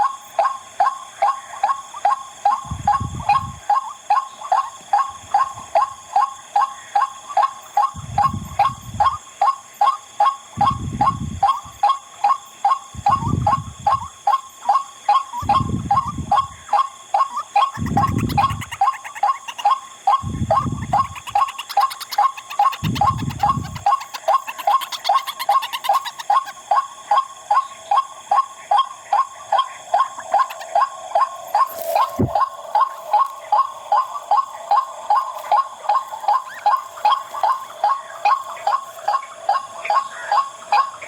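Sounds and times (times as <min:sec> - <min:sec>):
waterhen wak-wak call: 0:13.1 - 0:41.0.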